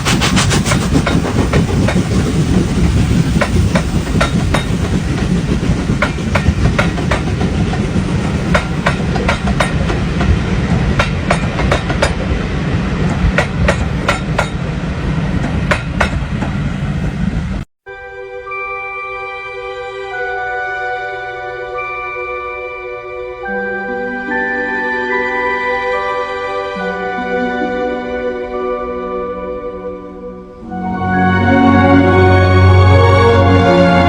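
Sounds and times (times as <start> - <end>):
wheels clicking over rail joints: 0.0 - 16.6
train rumbling on track: 0.0 - 17.7
music with sustained tones: 17.9 - 34.0.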